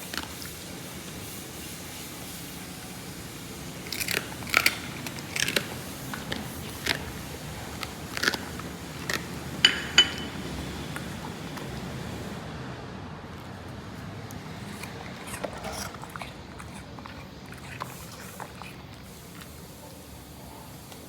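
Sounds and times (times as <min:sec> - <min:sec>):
dog chewing food: 0:00.0 - 0:12.4, 0:13.2 - 0:21.0
bowl clinking: 0:08.4 - 0:11.1.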